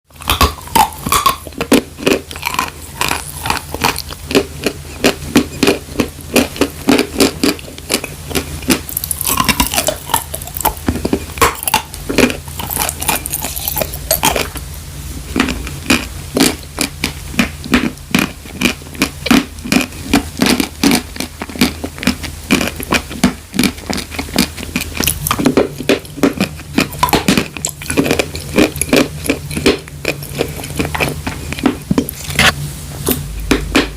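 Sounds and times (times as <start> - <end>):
faint low hum: 0.1 - 33.9
person crunching chalk: 0.2 - 14.6.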